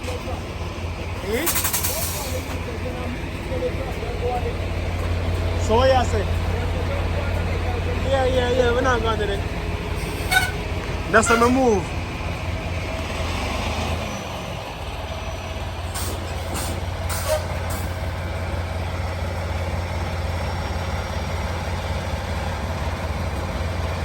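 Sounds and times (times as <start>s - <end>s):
diesel truck engine running: 0.0s - 24.0s
air brake hisses: 1.4s - 2.6s, 10.0s - 10.6s, 16.0s - 18.0s.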